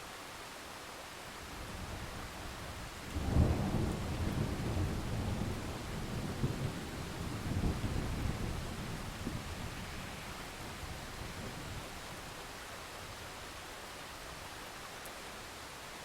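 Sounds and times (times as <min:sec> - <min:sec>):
steady rain: 0:00.0 - 0:16.0
thunder rumbling and cracking: 0:03.1 - 0:10.1.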